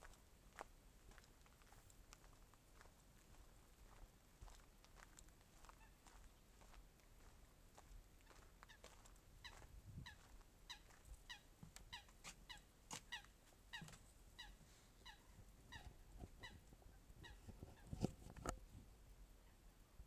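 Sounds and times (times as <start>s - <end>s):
bird calling faintly: 8.2s - 18.0s.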